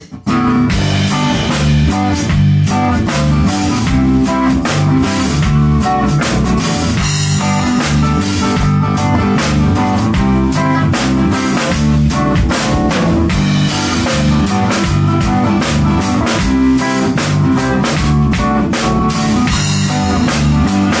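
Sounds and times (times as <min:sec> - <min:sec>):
drum kit steady beat: 0:00.0 - 0:21.0
electric guitar playing rock: 0:00.0 - 0:21.0.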